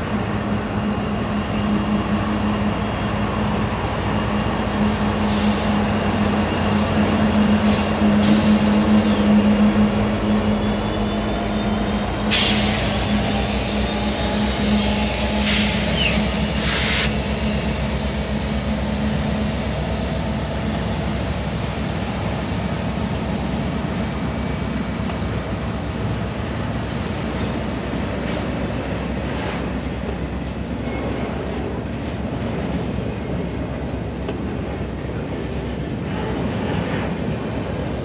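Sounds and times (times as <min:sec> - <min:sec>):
diesel locomotive engine: 0:00.0 - 0:38.0
train cars rumbling and clattering: 0:00.0 - 0:38.0
brief high squeals: 0:14.8 - 0:17.1.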